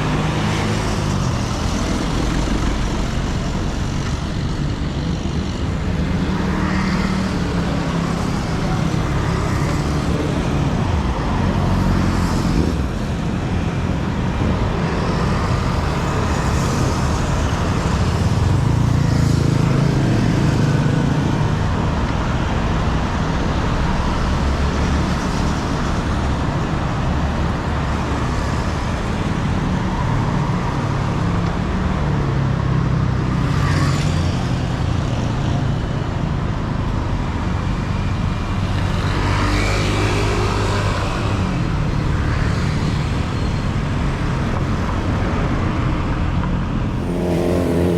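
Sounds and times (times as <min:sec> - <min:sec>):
road traffic passing: 0:00.0 - 0:47.9.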